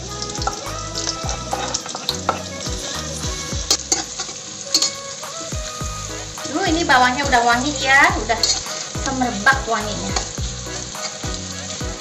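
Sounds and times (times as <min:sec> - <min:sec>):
frying in a wok sizzle: 0:00.0 - 0:12.0
spatula scraping pan: 0:07.5 - 0:12.0.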